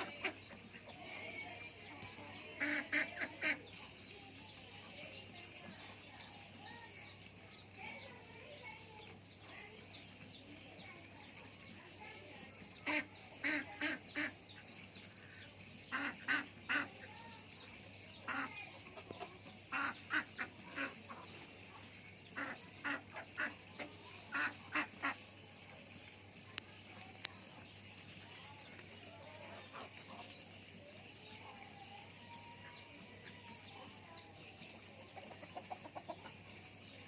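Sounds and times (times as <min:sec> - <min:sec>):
ducks quacking: 0:00.0 - 0:04.2, 0:12.7 - 0:25.4, 0:28.3 - 0:31.6, 0:33.1 - 0:36.4.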